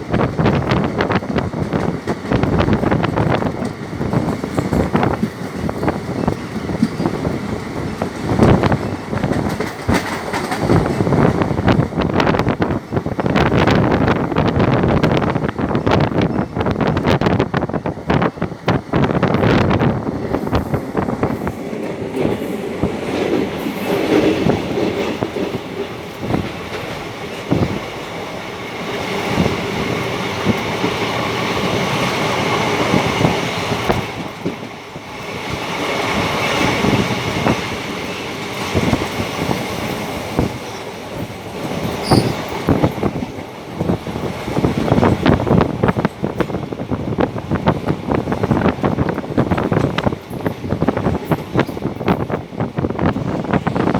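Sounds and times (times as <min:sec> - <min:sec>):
train wheels clattering over joints: 0:00.1 - 0:53.9
high wheel squeal: 0:42.0 - 0:42.5.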